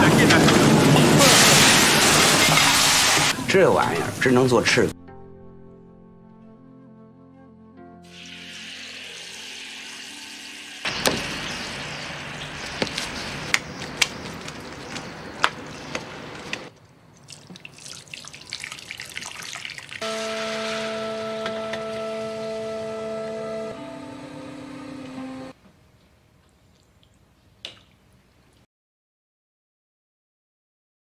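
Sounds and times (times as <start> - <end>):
food sizzling in pans: 0.5 - 3.4, 8.1 - 12.9, 19.9 - 21.9
hum of held tones: 20.0 - 25.5.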